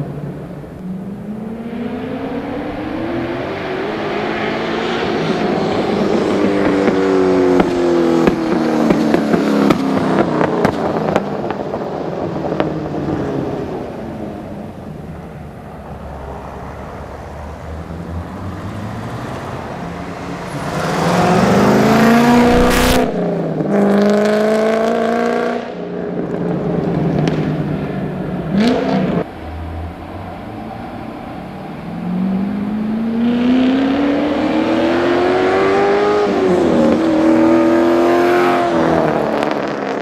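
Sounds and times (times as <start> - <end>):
car engine revving: 0.0 - 9.1, 17.8 - 25.6
exhaust crackles: 21.1 - 23.6.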